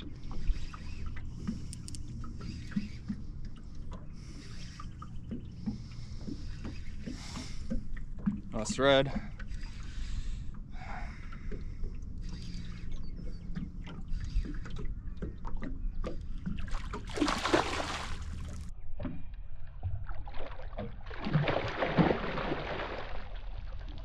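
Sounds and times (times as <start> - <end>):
gear knocking and clicking on kayak: 1.1 - 4.2
water splashing: 13.4 - 19.1, 19.9 - 24.0.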